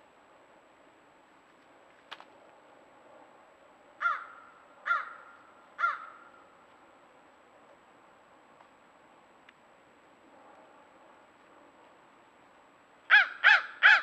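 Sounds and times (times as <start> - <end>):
crow cawing: 4.0 - 6.4, 13.1 - 14.0.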